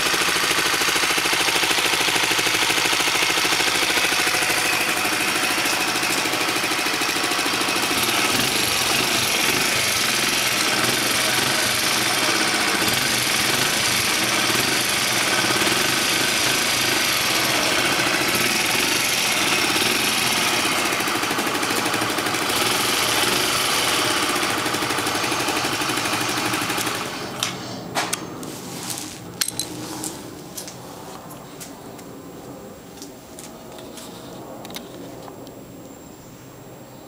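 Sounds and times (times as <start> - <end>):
motorcycle engine running: 0.0 - 27.6.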